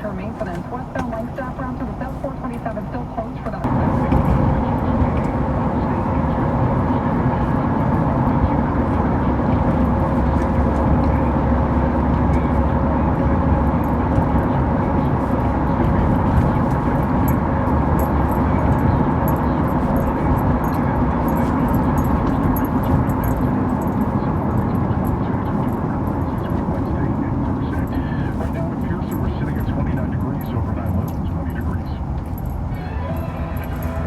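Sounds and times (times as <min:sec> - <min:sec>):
car road and engine noise: 0:00.0 - 0:34.0.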